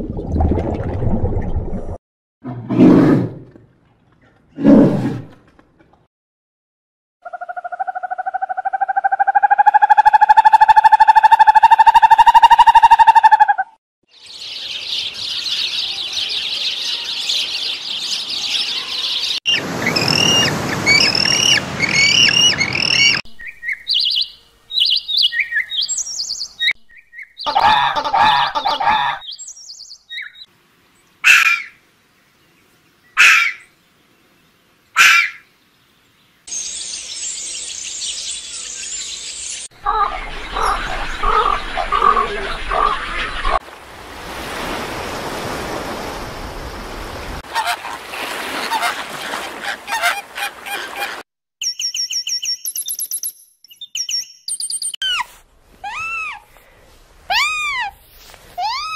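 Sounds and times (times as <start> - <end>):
bird calls: 14.2 - 30.5, 36.5 - 43.6
birds chirping: 14.2 - 43.6, 46.1 - 55.2.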